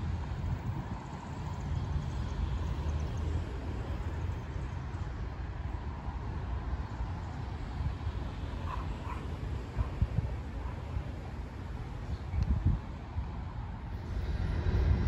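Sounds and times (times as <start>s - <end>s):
coal train rumbling: 13.6s - 15.0s.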